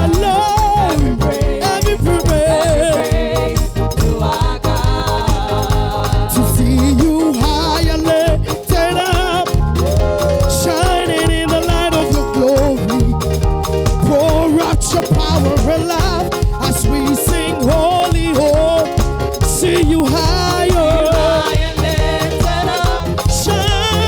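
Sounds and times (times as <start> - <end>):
gospel music with singing: 0.0 - 24.0.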